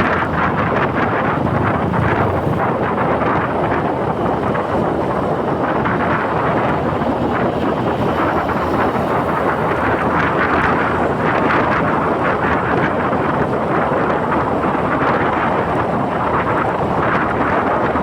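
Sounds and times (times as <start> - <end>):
scooter engine running: 0.0 - 13.8
wind on microphone: 0.0 - 18.0.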